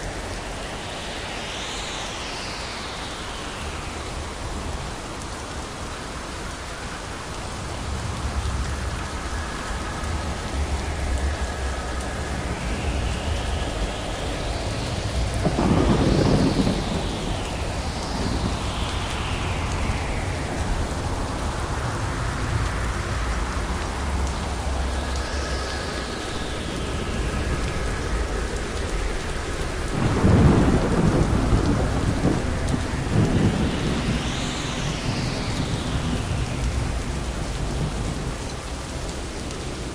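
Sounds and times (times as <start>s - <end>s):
steady rain falling: 0.0s - 39.9s
rolling rumble of thunder: 7.5s - 39.9s
thunderclaps: 12.3s - 22.5s, 26.2s - 38.7s.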